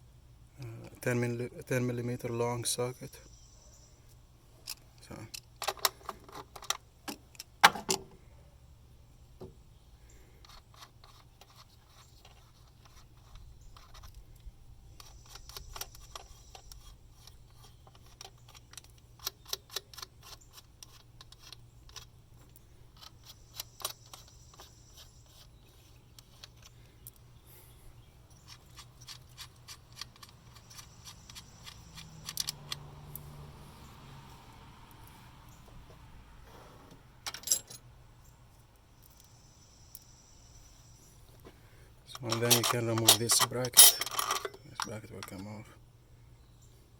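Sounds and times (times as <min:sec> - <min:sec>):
light metal clinks and rubbing: 0:10.1 - 0:35.7, 0:37.2 - 0:37.9, 0:42.0 - 0:45.6
socket ratchet clicking: 0:28.3 - 0:33.2.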